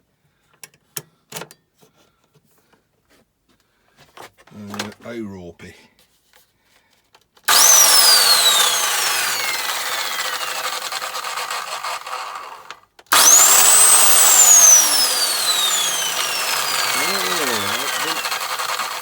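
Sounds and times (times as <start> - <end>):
chop saw motor whine: 7.5 - 19.0.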